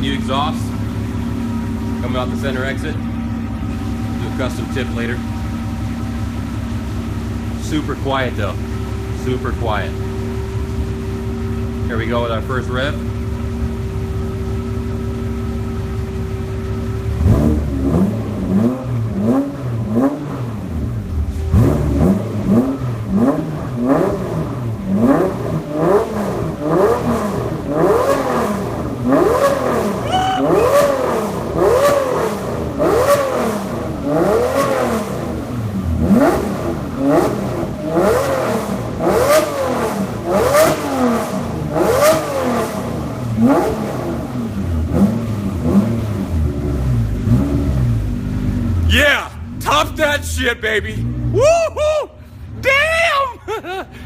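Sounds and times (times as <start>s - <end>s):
car engine revving: 0.0s - 51.5s.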